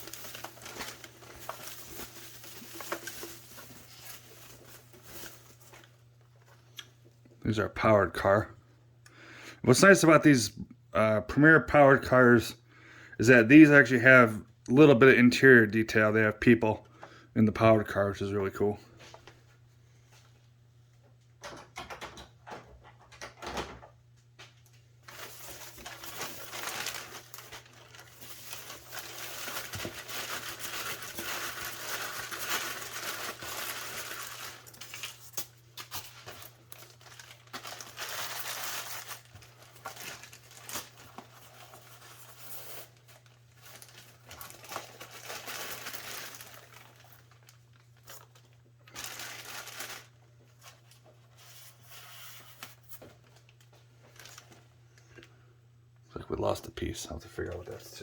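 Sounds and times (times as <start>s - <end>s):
packaging crinkling and rustling: 0.0s - 6.8s, 24.4s - 54.8s.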